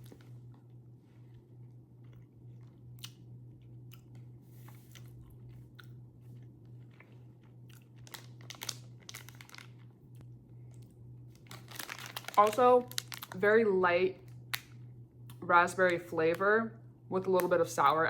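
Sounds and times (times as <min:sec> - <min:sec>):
low electrical hum: 0:00.0 - 0:18.0
person chewing gummy candy: 0:01.3 - 0:13.4.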